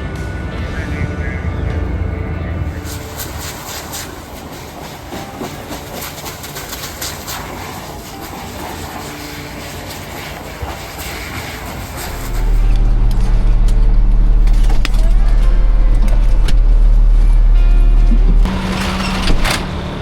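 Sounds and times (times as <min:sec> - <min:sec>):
bushes crackling: 0:00.0 - 0:20.0
fire hose spraying: 0:02.7 - 0:17.6.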